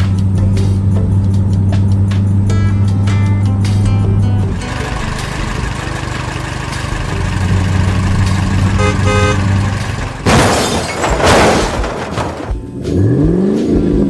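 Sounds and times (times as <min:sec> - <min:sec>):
cartoon truck engine hum: 0:00.0 - 0:14.0
rushing crashing noise: 0:04.5 - 0:12.7
truck horn toots: 0:04.6 - 0:10.3.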